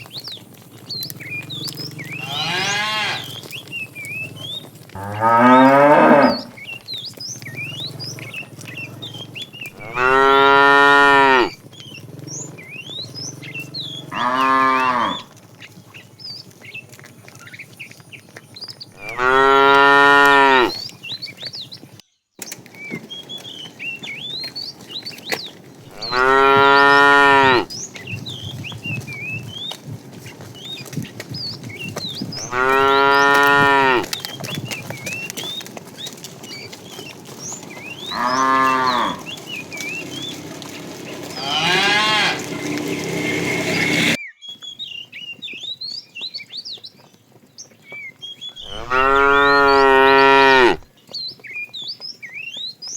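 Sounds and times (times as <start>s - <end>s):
small birds chirping faintly: 0.0s - 52.9s
cattle mooing: 0.8s - 3.7s, 4.3s - 6.8s, 7.5s - 15.4s, 19.0s - 20.8s, 25.8s - 27.7s, 32.4s - 34.3s, 36.2s - 44.2s, 48.6s - 50.8s.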